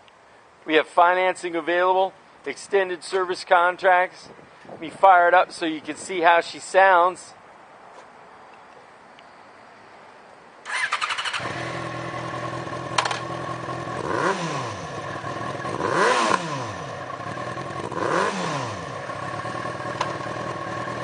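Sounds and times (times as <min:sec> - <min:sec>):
motorcycle engine starting: 0:10.6 - 0:21.0
motorcycle engine revving: 0:10.7 - 0:21.0
sharp click: 0:20.0 - 0:20.2.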